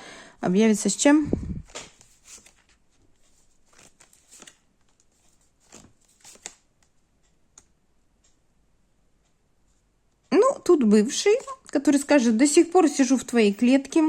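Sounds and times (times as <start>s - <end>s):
cards rustling and tapping: 1.6s - 7.7s.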